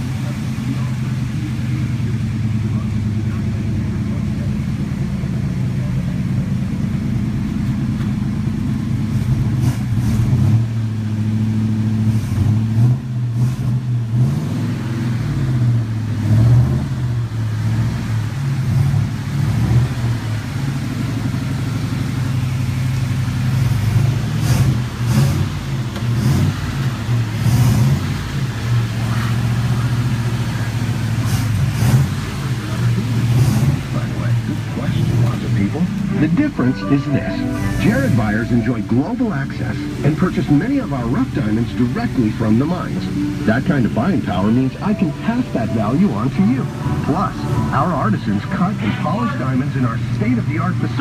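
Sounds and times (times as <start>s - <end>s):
car engine revving: 0.0s - 51.0s.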